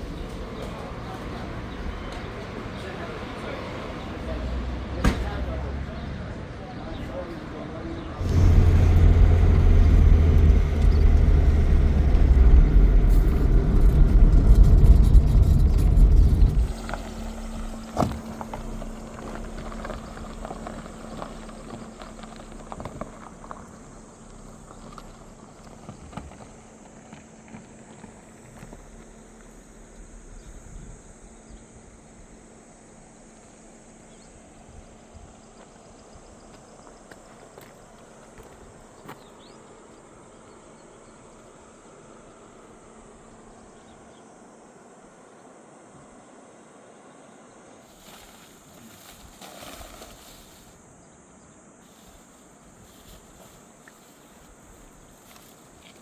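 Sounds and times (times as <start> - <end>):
insect chorus: 0.0 - 56.0
loud low rumble: 8.1 - 25.5.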